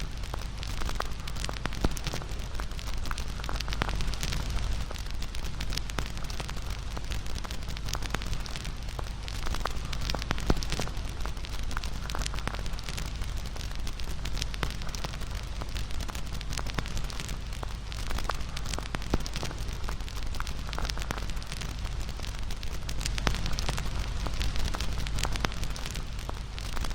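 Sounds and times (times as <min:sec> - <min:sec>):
bonfire crackling and popping: 0:00.0 - 0:26.9
steady rushing fire noise: 0:00.0 - 0:26.9.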